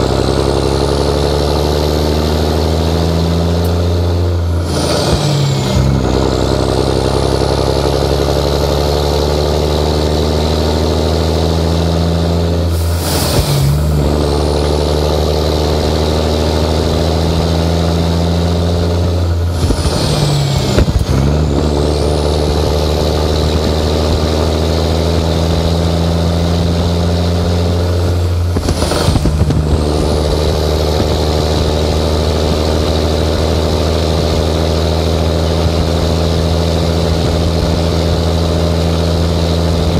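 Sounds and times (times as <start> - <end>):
diesel truck engine under load: 0.0 - 39.9
turbo whine: 10.8 - 39.9.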